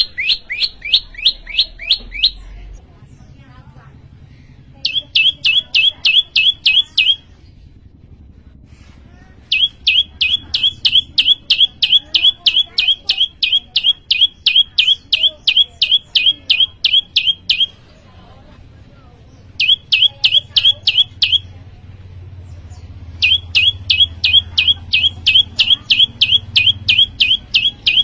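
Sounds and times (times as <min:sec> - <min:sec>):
songbird calling in sharp high notes: 0:00.0 - 0:02.4, 0:04.8 - 0:07.3, 0:09.5 - 0:17.8, 0:19.6 - 0:21.5, 0:23.2 - 0:28.0.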